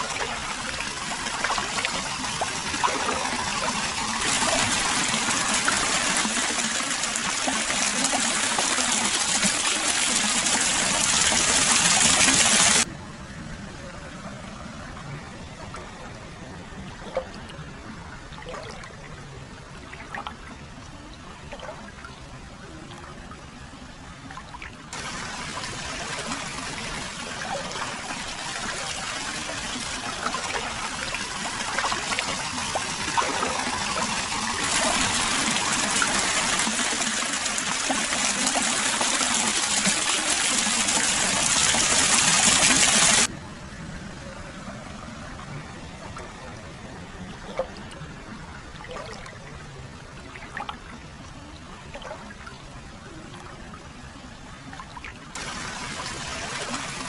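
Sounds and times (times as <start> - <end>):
water splashing into a bath: 24.9 - 43.3.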